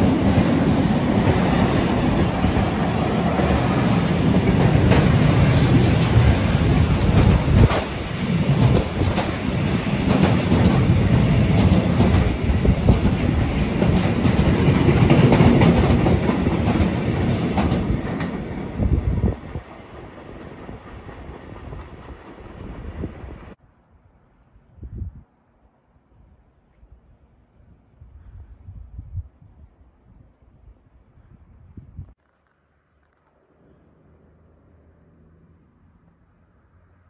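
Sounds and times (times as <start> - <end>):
freight train rumbling: 0.0 - 23.6.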